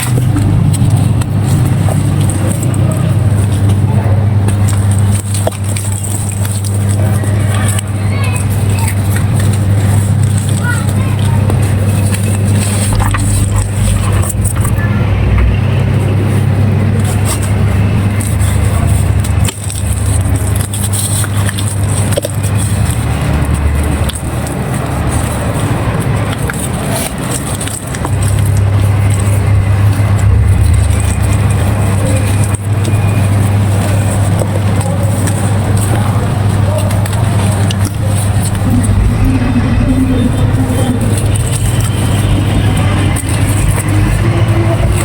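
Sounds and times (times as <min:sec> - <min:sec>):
dry clay crumbling and crunching: 0:00.0 - 0:45.0
low rumble: 0:11.4 - 0:20.4, 0:28.1 - 0:33.6, 0:37.5 - 0:45.0.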